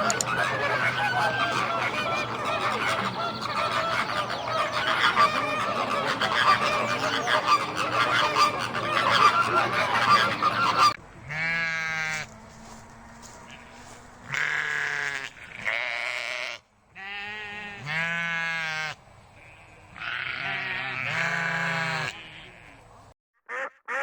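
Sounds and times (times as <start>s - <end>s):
geese honking: 0.0s - 24.0s
wavering bleat: 11.2s - 12.4s, 13.5s - 22.8s.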